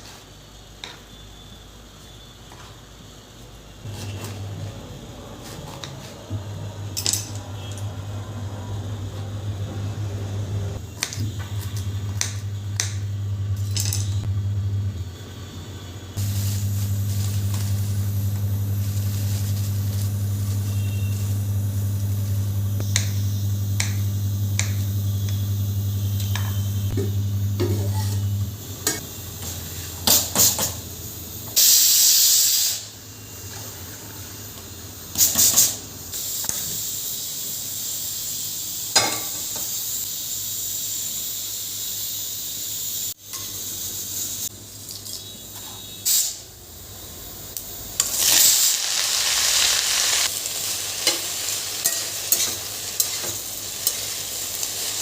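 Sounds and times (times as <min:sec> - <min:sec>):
low electrical hum: 0:00.4 - 0:31.6
hissing: 0:16.2 - 0:27.6.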